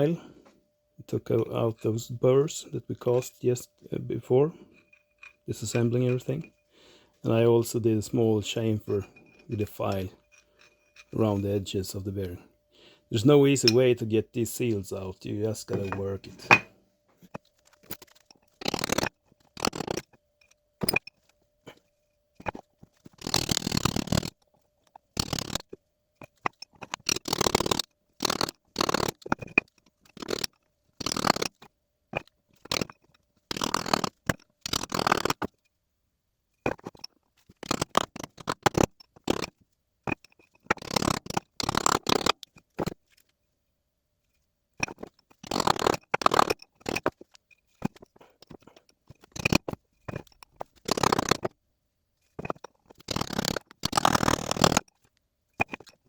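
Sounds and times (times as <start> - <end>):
metal tool scraping: 4.0 - 11.9, 13.4 - 24.4, 52.4 - 54.9.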